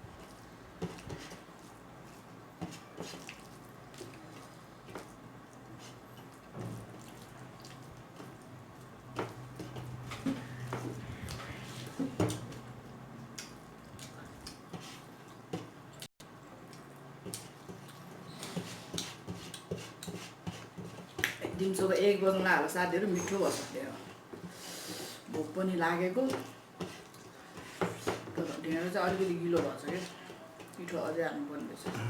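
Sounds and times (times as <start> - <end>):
wet chewing and smacking: 5.5 - 8.4.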